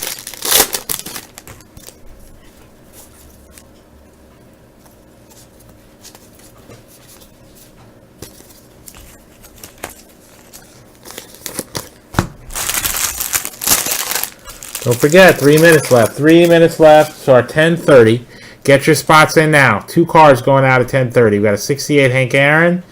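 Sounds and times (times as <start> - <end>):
trading cards being flipped: 4.8 - 11.9.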